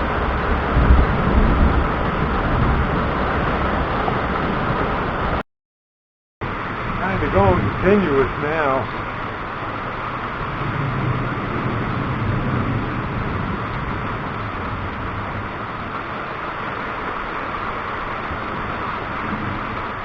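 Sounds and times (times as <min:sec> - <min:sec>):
distant thunder rumble: 0:00.0 - 0:05.4, 0:06.4 - 0:20.0
storm hiss: 0:06.4 - 0:20.0.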